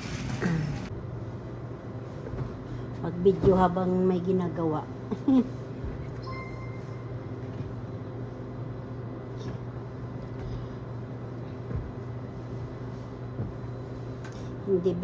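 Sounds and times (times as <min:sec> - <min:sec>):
short high beep: 0:06.2 - 0:07.1.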